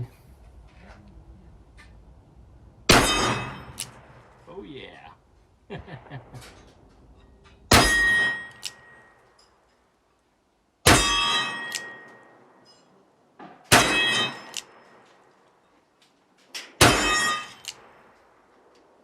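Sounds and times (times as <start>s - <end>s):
steel plate ringing: 2.9s - 4.1s, 7.2s - 9.6s, 10.9s - 13.0s, 13.7s - 15.0s, 16.8s - 18.0s.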